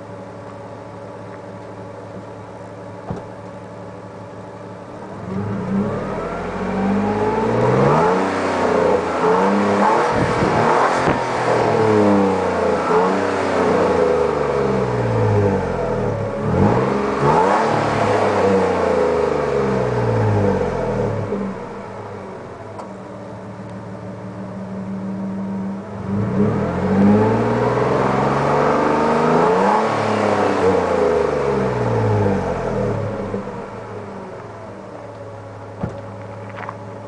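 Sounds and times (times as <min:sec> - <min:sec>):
truck engine revving: 0:05.2 - 0:21.6, 0:26.0 - 0:33.6.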